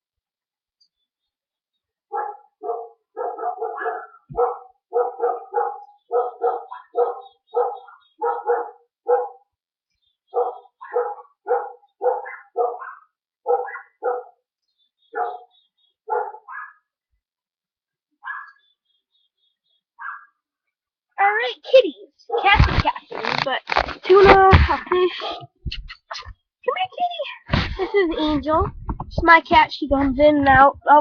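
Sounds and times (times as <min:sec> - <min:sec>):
dog barking: 0:02.1 - 0:09.5, 0:10.3 - 0:14.4, 0:15.1 - 0:16.9, 0:18.2 - 0:18.6, 0:20.0 - 0:20.4, 0:22.3 - 0:22.6, 0:25.2 - 0:25.5.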